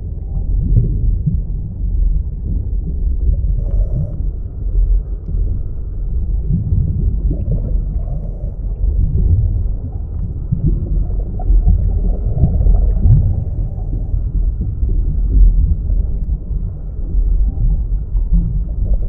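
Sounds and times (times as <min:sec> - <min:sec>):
underwater rumble with gurgling: 0:00.0 - 0:19.0.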